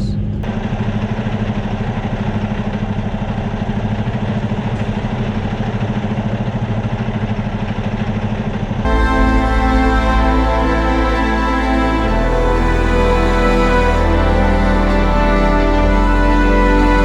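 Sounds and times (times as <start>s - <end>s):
music: 8.9s - 17.0s
truck diesel engine droning: 8.9s - 17.0s.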